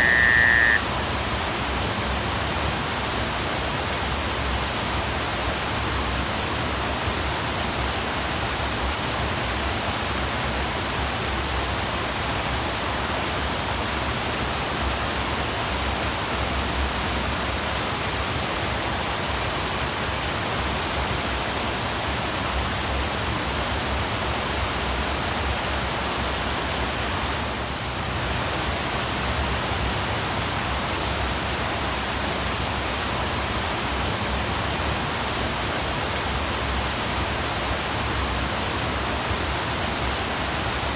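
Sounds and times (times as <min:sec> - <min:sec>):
waterfall rushing: 0:00.0 - 0:03.2.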